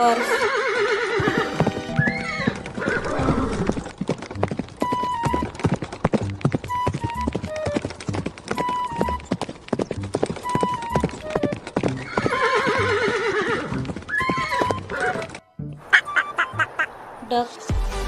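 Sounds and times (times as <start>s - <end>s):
horse whinnying: 0.0s - 4.1s, 10.4s - 15.4s
horse hoofbeats at a canter: 1.0s - 15.4s.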